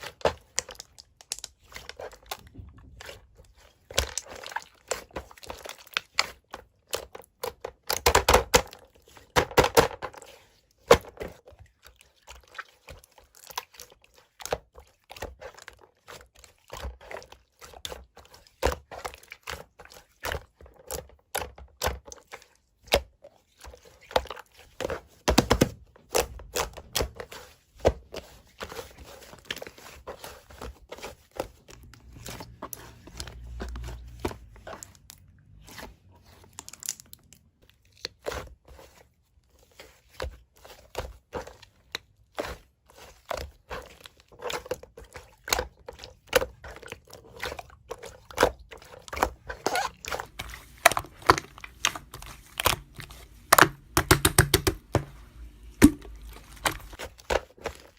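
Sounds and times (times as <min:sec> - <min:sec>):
crinkling: 0:23.3 - 0:57.9.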